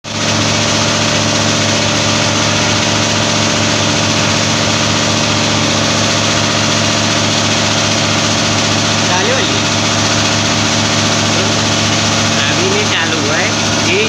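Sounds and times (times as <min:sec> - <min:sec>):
air conditioner electrical hum: 0:00.1 - 0:14.0.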